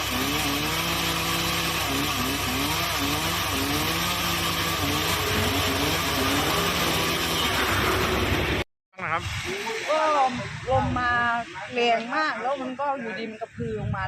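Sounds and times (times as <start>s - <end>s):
chainsaw revving while cutting: 0.0s - 8.6s.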